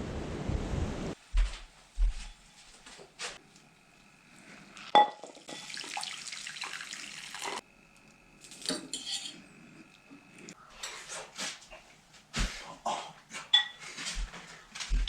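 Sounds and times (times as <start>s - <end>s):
dishes clattering: 4.9s - 5.9s, 13.5s - 13.8s
metal pot clanking: 4.9s - 5.9s.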